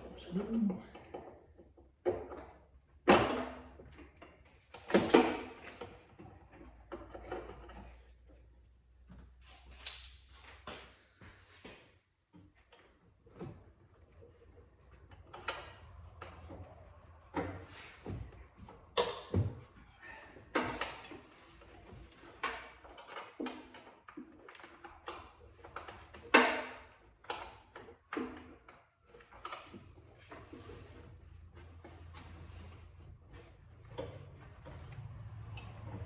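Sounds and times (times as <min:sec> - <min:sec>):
hand tools clicking and scraping: 0:09.1 - 0:36.0.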